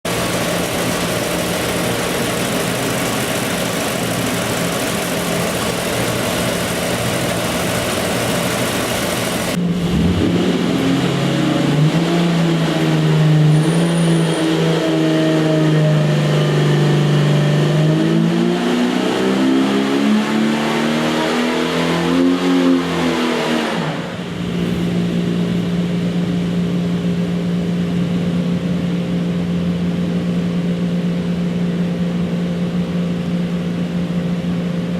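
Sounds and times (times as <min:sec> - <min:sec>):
engine revving on a dyno: 0:00.1 - 0:34.9.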